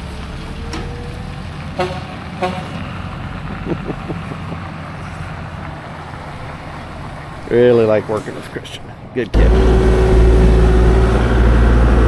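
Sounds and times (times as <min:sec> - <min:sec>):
engine humming: 0:09.3 - 0:12.0.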